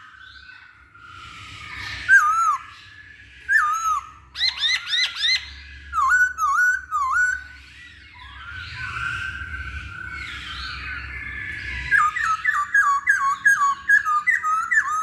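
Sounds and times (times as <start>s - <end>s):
bird singing whistled phrases: 0.0s - 15.0s.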